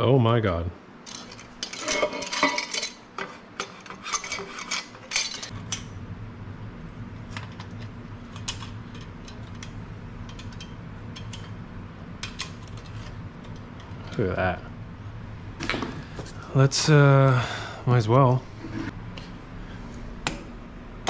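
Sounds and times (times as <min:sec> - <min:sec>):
steady low hum: 0:00.0 - 0:21.0
metal exhaust parts clinking: 0:01.0 - 0:06.0.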